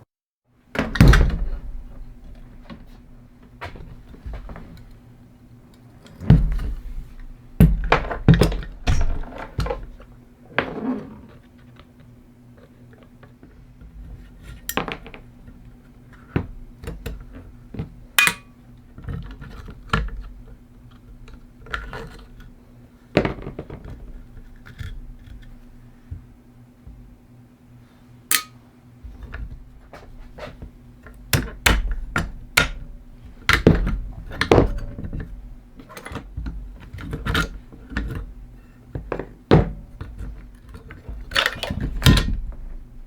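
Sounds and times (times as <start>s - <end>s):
metal tools clinking and knocking: 18.2s - 18.5s, 28.3s - 28.6s.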